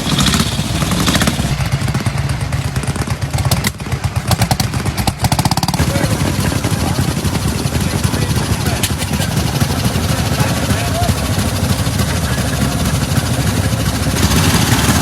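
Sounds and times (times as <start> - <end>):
vehicle engine running: 0.0 - 15.0
rattle of sharp clicks: 8.7 - 11.0.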